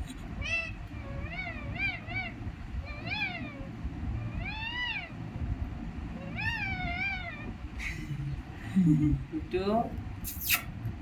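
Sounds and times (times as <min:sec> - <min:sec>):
parrot meow-like cries: 0:00.4 - 0:05.2, 0:06.2 - 0:07.6.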